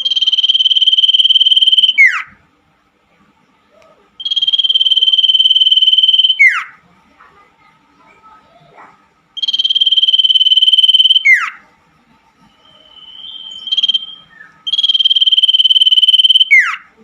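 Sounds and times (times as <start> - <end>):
soft steady bird whistle: 0.0 - 2.3, 4.2 - 6.6, 9.4 - 11.5, 12.4 - 16.8
bird trilled high calls: 0.0 - 2.4, 4.2 - 6.8, 9.4 - 11.6, 12.6 - 16.9.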